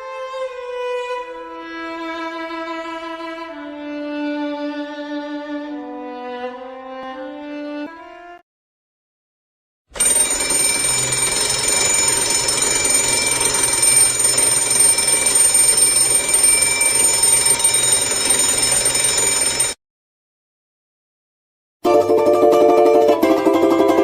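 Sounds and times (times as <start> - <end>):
alarm clock bell ringing: 10.0 - 19.8.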